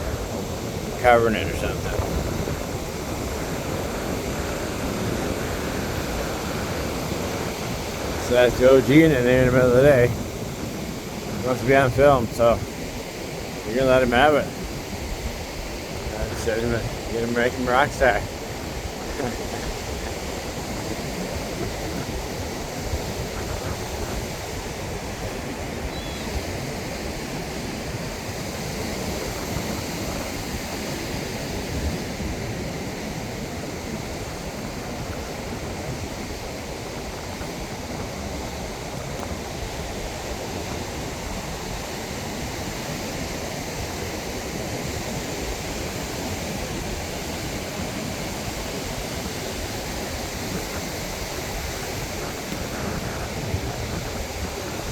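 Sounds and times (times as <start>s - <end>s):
ocean surf: 0.0s - 54.9s
wind rumbling on microphone: 0.0s - 54.9s.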